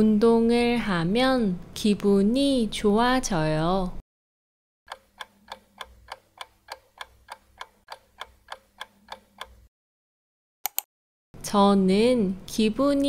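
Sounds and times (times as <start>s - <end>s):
clock ticking: 4.9s - 9.7s.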